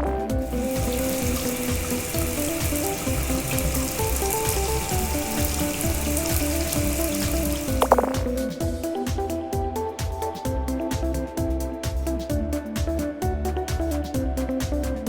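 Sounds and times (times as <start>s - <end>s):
background tune with bass beat: 0.0s - 15.0s
water spray hissing: 0.4s - 8.4s.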